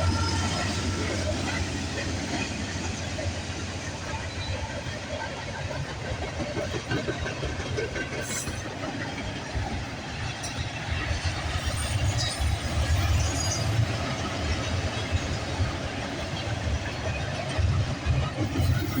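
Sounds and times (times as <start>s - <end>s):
freight train rumbling past: 0.0s - 19.0s
high wheel squeals: 11.6s - 14.2s.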